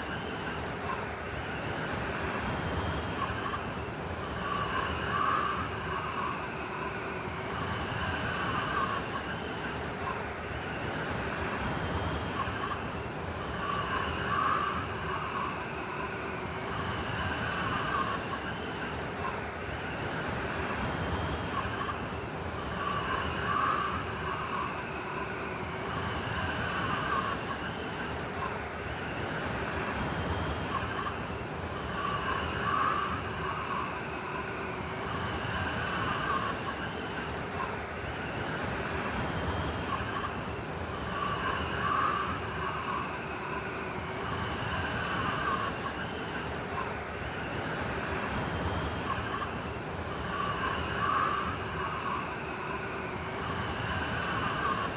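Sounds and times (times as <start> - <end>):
wailing wind swell: 12.2 - 54.9
blizzard wind blowing: 21.4 - 54.9.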